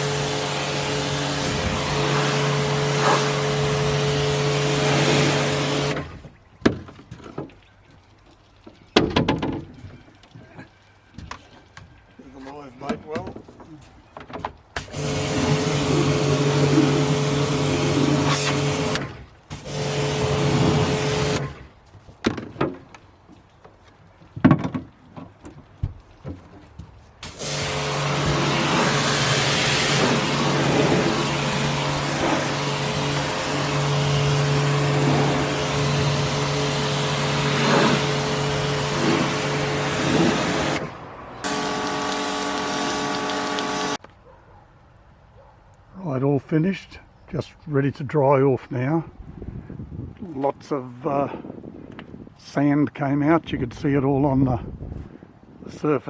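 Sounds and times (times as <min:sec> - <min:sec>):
pressure washer spraying water: 0:00.0 - 0:06.2, 0:14.8 - 0:21.7, 0:27.2 - 0:44.0.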